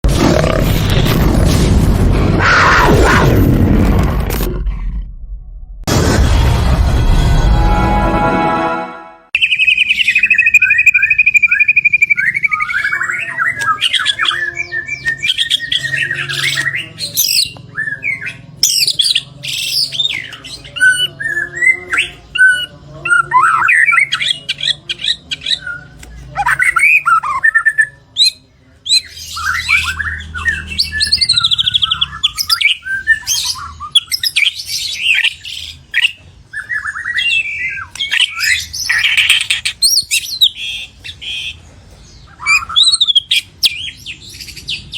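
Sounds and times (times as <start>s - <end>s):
bird singing whistles and trills: 9.4s - 41.2s, 42.3s - 44.9s.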